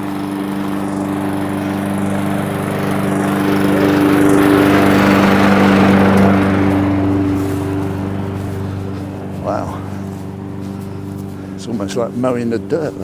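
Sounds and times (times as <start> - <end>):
lawn mower engine running: 0.0 - 13.0.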